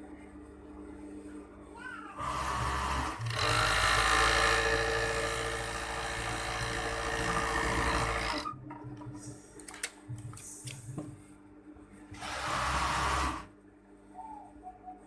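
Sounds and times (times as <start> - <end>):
sewing machine running: 2.2 - 8.5, 12.2 - 13.5.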